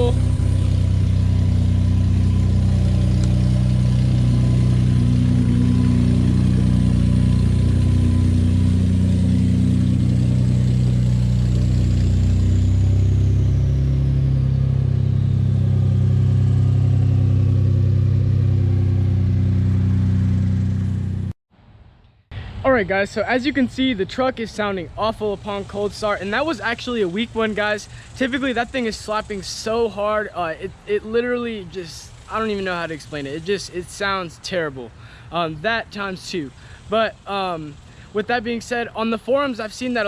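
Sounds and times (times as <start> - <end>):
engine rattle: 0.0 - 21.3
truck engine idling: 0.0 - 21.3.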